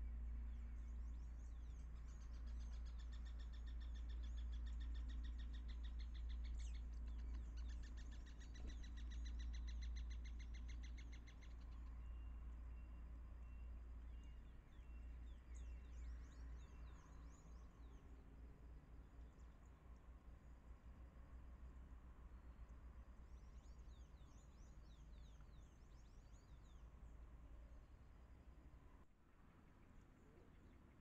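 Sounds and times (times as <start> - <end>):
bird singing fast trill: 0.0 - 18.1
steady low hum: 0.0 - 31.0.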